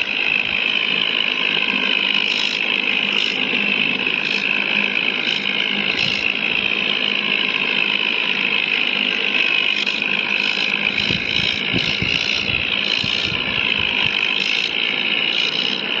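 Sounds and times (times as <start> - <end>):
tractor engine running: 10.7 - 14.3
low knocking: 11.0 - 13.5.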